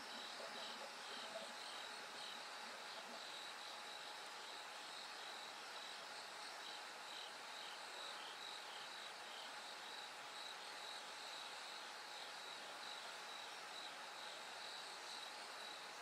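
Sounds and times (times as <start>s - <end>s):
faint steady hiss: 0.0s - 16.0s
lower-pitched cricket chirping: 0.0s - 16.0s
crickets chirping: 0.1s - 16.0s.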